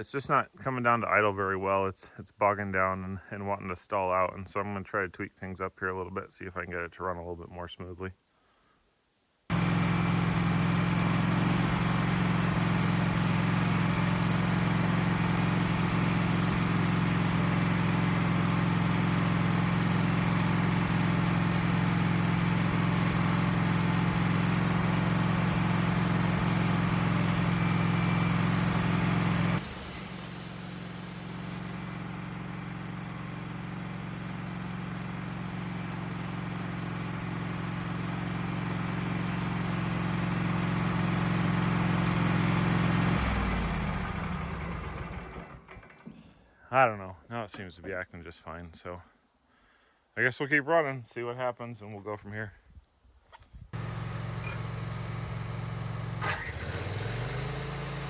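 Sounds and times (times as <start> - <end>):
sawmill engine running: 9.5 - 46.3, 53.8 - 58.0.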